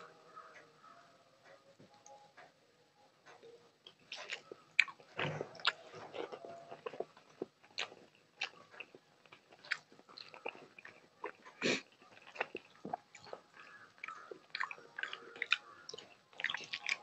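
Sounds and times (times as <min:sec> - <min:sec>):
person chewing with wet smacks: 0:03.3 - 0:17.0.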